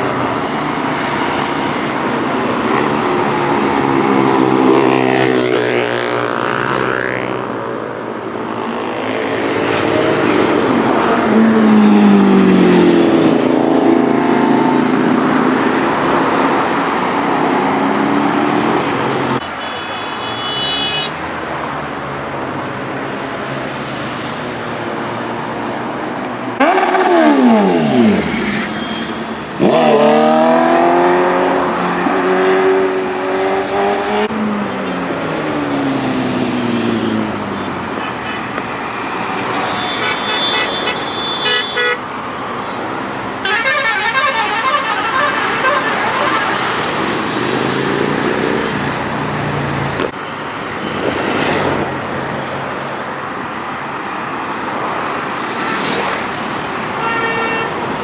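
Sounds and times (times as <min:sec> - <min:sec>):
motorbike engines revving: 0:00.0 - 0:19.4, 0:21.6 - 0:58.0
vehicle horn honking: 0:19.4 - 0:21.2, 0:39.5 - 0:42.1, 0:43.4 - 0:47.0, 0:57.0 - 0:57.9.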